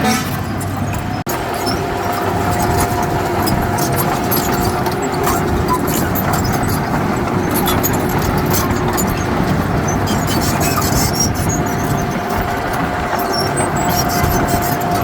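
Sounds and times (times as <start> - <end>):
heavy diesel machine running: 0.0 - 15.0.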